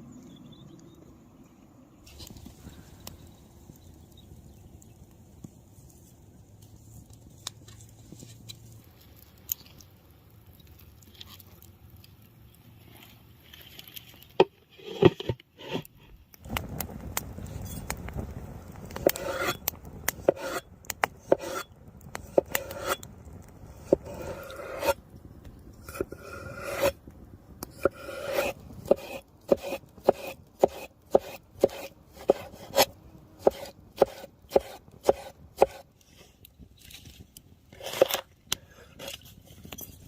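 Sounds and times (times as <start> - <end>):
rough scraping and rubbing: 12.8 - 16.2, 18.9 - 23.1, 23.8 - 25.0, 25.8 - 27.0, 27.7 - 40.0.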